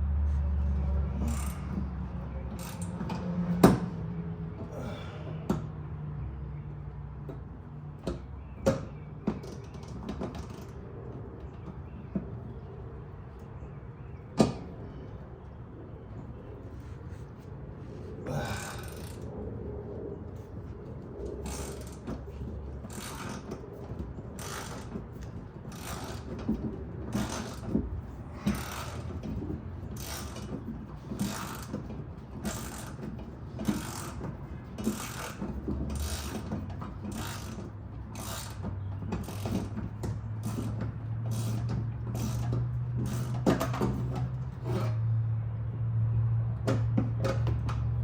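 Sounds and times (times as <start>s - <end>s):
ratchet wrench clicking: 1.1s - 1.8s, 2.5s - 3.3s, 18.6s - 19.2s, 21.4s - 22.1s, 22.9s - 23.6s, 24.4s - 26.4s, 27.1s - 27.8s, 28.4s - 31.8s, 32.4s - 45.0s.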